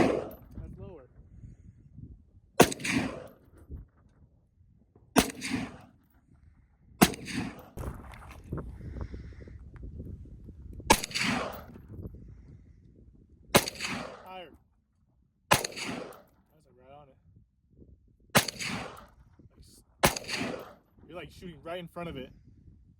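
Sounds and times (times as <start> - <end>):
rifle shots with echo: 0.0 - 0.5, 2.6 - 3.5, 5.2 - 6.0, 7.0 - 8.0, 10.9 - 11.8, 13.5 - 14.4, 15.5 - 16.4, 18.4 - 19.2, 20.0 - 20.9.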